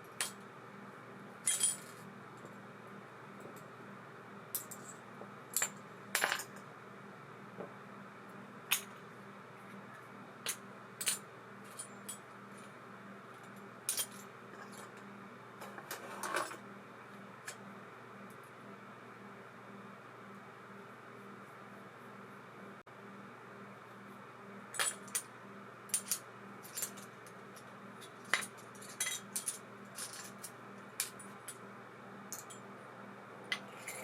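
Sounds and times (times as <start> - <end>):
faint steady hum: 0.0 - 34.0
small metal parts clinking: 1.4 - 2.0, 25.9 - 31.6, 32.3 - 32.6.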